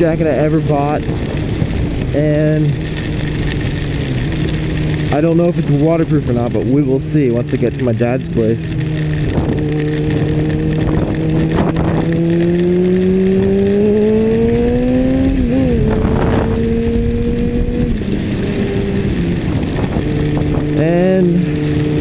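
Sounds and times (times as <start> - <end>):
wind noise: 0.0 - 6.7, 7.3 - 22.0
motorcycle engine accelerating: 0.0 - 22.0.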